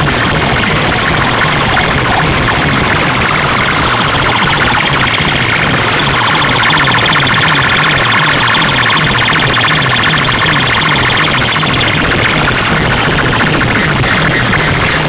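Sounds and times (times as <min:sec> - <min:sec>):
falling bass sweeps: 0:00.0 - 0:12.0
siren-like warbling tone: 0:00.0 - 0:13.7.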